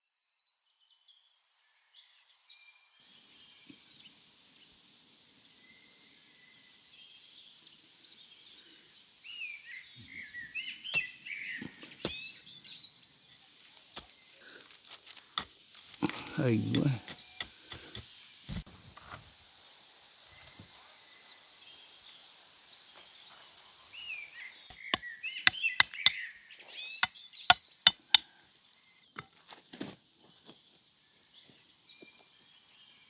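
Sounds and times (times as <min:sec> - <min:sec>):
small birds chirping: 0:03.1 - 0:33.0
sharp knocks: 0:24.7 - 0:26.2.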